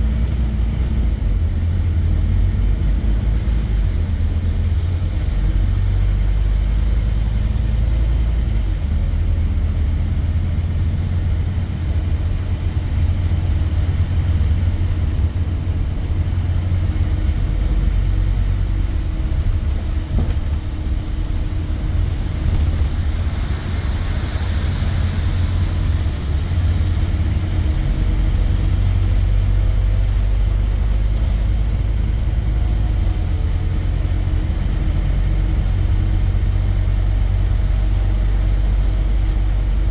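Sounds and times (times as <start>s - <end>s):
bus diesel engine rumbling: 0.0s - 39.9s
hiss: 22.8s - 27.2s.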